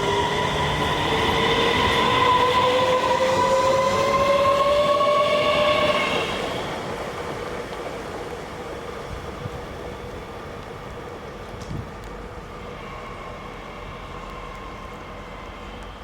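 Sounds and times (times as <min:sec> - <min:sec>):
electric train whine rising: 0:00.0 - 0:16.0
train rolling noise: 0:00.0 - 0:16.0.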